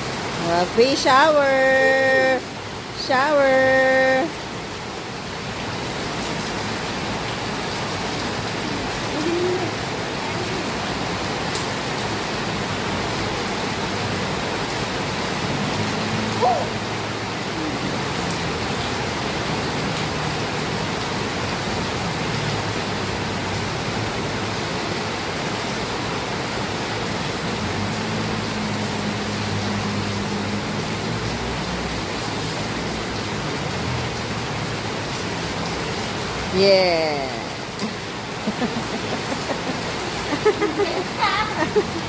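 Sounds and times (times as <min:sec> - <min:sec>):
heavy rain pouring: 0:00.0 - 0:42.0
distant voice calling: 0:08.5 - 0:10.8, 0:16.1 - 0:18.3.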